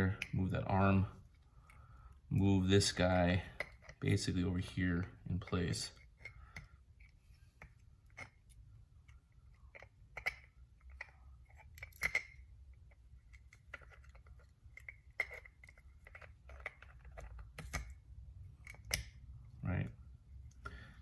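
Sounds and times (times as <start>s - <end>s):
clipper parts clicking and tapping: 5.4s - 18.0s.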